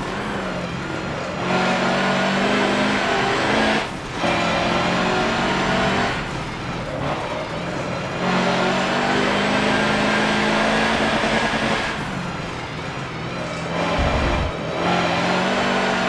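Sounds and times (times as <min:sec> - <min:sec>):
diesel truck engine pulling hard: 0:00.0 - 0:16.0.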